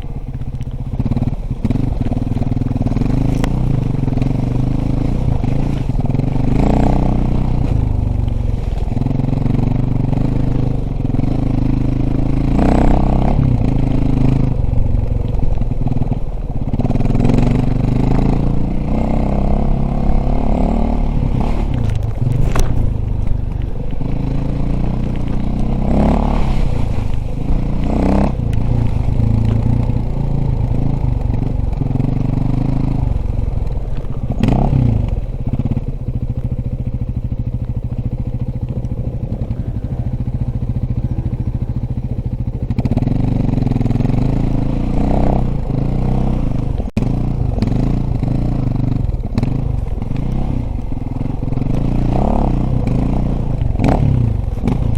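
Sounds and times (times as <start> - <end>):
dirt bike engine running: 0.0 - 54.9.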